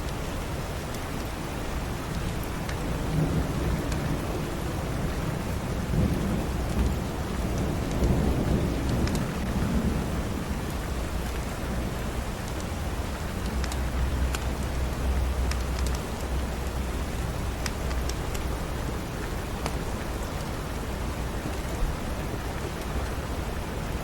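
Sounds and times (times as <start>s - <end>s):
steady rain: 0.0s - 24.0s
rumble of thunder: 2.8s - 13.1s
wood fire crackling: 10.6s - 23.3s.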